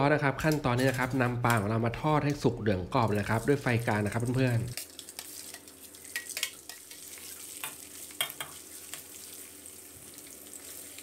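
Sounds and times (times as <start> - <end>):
fish sizzling in hot oil: 3.2 - 11.0.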